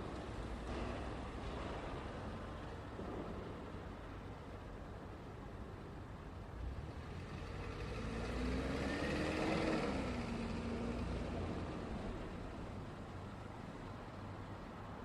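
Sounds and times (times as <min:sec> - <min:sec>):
traffic low rumble: 0:00.0 - 0:15.0
vehicle driving past: 0:06.6 - 0:13.1.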